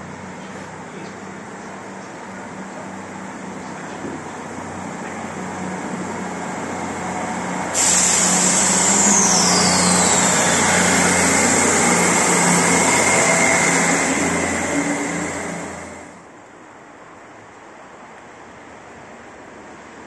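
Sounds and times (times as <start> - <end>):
rush of train wheels and air: 0.0 - 20.0
train engine hum: 0.0 - 20.0
high whine falling in pitch: 6.3 - 16.2.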